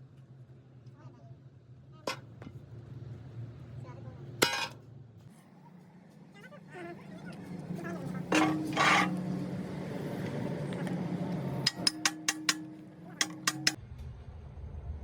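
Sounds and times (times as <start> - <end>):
sharp metallic clinks and taps: 11.6 - 13.8.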